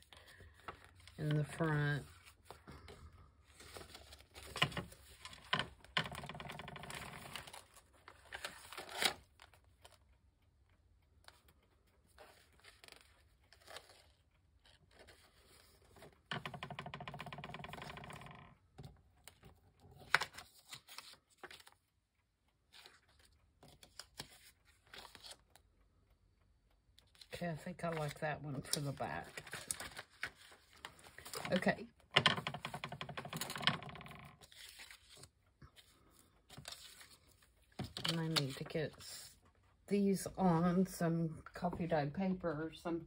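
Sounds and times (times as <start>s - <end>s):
paper rustling and tapping: 3.6s - 10.0s, 12.2s - 21.8s, 27.1s - 38.7s.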